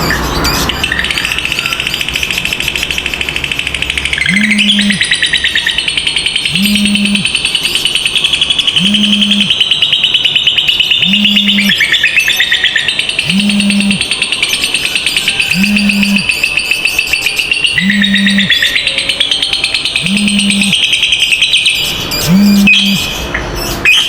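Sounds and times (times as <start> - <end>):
lovebird chattering trill: 0.2 - 24.0
low pulsing hum: 4.2 - 5.2, 6.5 - 7.3, 8.8 - 9.5, 13.3 - 14.0, 15.5 - 16.3, 22.2 - 23.0.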